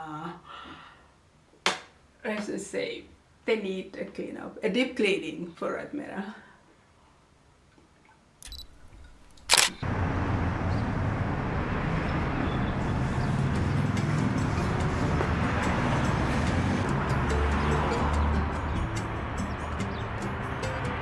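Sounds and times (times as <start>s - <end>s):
loud sharp click: 8.4s - 9.8s
outdoor background rumble and hiss: 8.4s - 21.0s.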